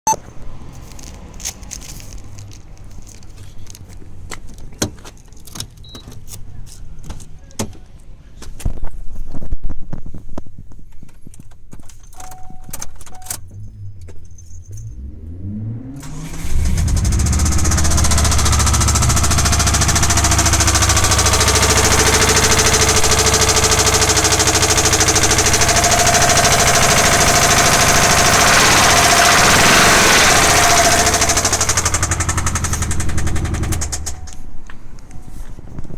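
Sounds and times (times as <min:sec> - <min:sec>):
car engine cranking and starting: 0:13.4 - 0:35.2
rapid engine knocking: 0:16.1 - 0:34.3.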